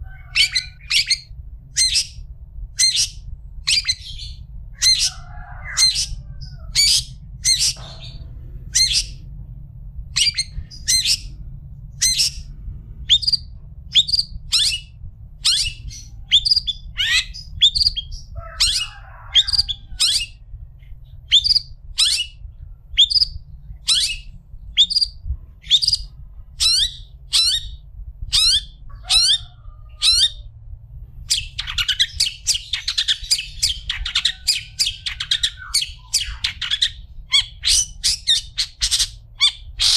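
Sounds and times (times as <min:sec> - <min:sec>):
shrike calling: 0:00.0 - 0:02.2, 0:02.8 - 0:09.3, 0:10.1 - 0:11.4, 0:13.1 - 0:20.4, 0:31.3 - 0:39.9.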